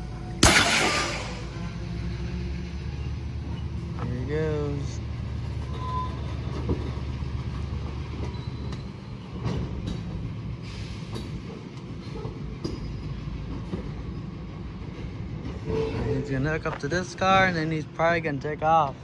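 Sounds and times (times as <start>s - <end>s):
locomotive engine rumble: 0.0s - 19.0s
sharp metal clanks: 0.4s - 1.7s.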